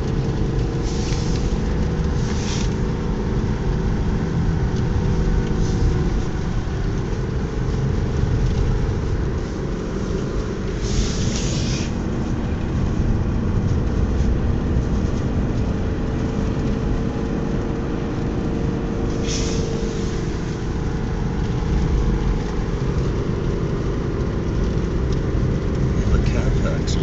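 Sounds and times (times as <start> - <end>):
car engine and tyre rumble: 0.0 - 27.0
brief hisses: 10.8 - 11.9, 19.2 - 20.2.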